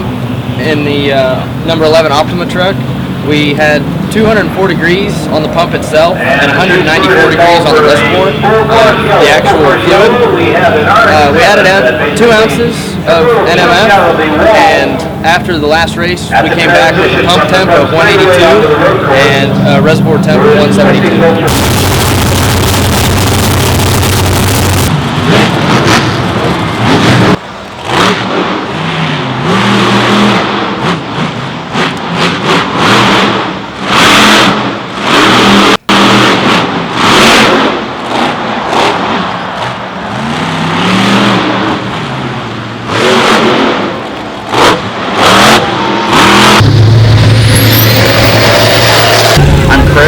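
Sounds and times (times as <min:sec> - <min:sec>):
race truck engines revving: 0:00.0 - 0:50.0.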